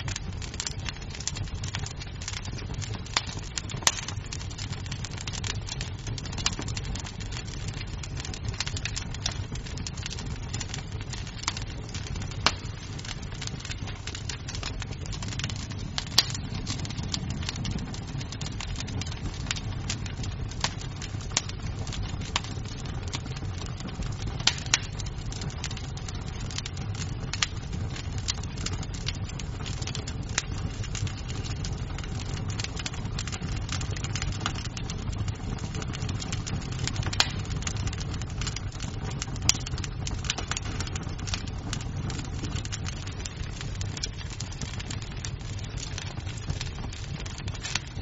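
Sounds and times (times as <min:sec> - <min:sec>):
fire burning rumble: 0:00.0 - 0:48.0
wood crackling and popping: 0:00.0 - 0:48.0.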